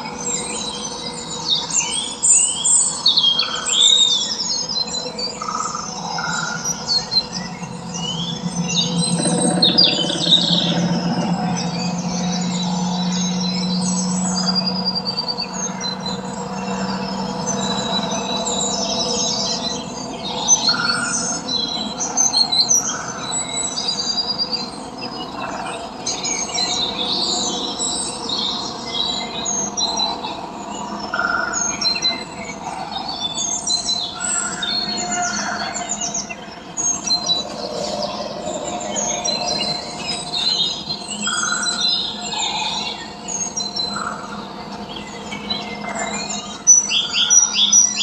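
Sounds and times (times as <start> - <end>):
birds chirping and calling: 6.1 - 16.8
steady held tones: 6.6 - 14.0.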